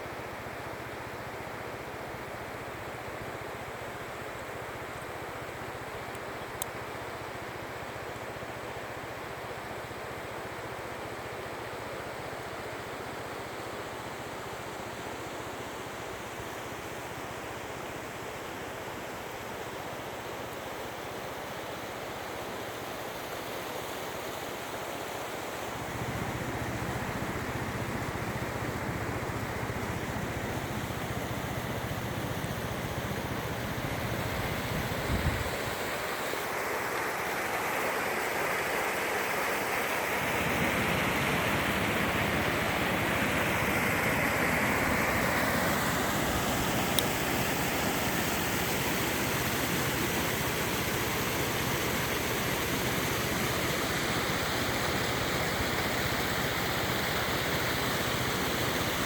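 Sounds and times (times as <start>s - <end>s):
stream rushing: 0.0s - 59.0s.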